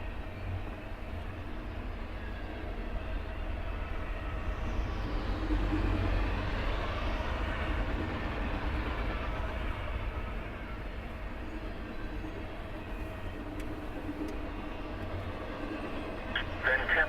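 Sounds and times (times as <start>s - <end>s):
freight train rumbling on rails: 0.0s - 17.0s
faint high whine: 15.7s - 17.0s.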